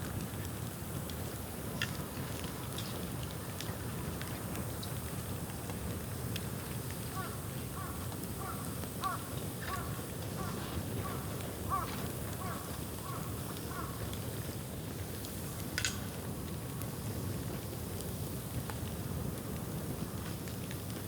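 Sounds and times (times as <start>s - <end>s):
bonfire burning: 0.0s - 21.0s
fire popping: 0.0s - 21.0s
crow cawing: 7.2s - 14.0s.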